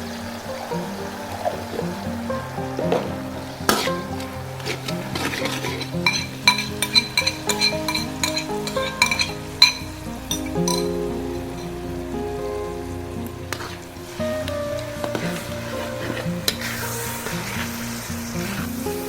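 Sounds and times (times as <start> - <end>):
food sizzling: 0.0 - 19.0
spatula and shells clinking on pan: 5.7 - 10.9.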